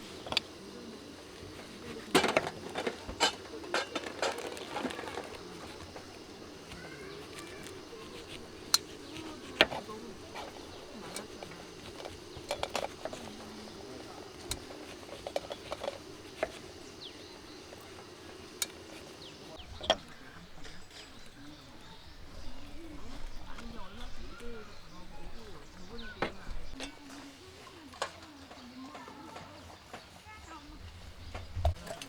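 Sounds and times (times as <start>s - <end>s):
distant voices: 0.0s - 32.0s
tableware clicking and knocking: 1.4s - 21.4s.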